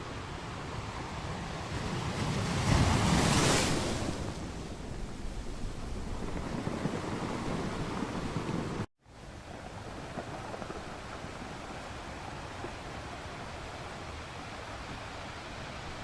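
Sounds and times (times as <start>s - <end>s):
ocean waves in surf: 0.0s - 5.4s, 6.2s - 8.9s.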